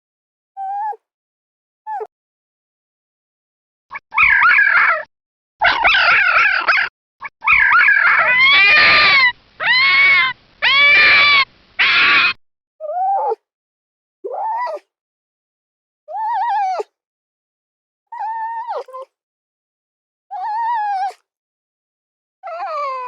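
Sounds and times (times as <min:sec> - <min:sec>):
dog whining and howling: 0:00.6 - 0:01.0, 0:04.1 - 0:13.4, 0:14.3 - 0:14.9, 0:16.1 - 0:16.9, 0:18.1 - 0:19.1, 0:20.3 - 0:21.3, 0:22.4 - 0:23.0.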